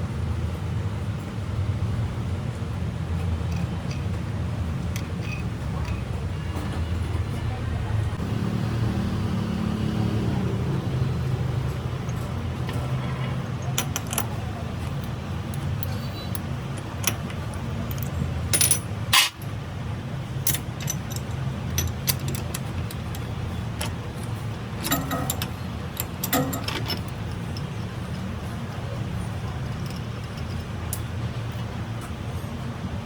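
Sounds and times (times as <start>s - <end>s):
steady low hum: 0.0s - 33.0s
metal tools clinking: 4.9s - 6.2s, 12.1s - 19.5s, 20.4s - 28.3s.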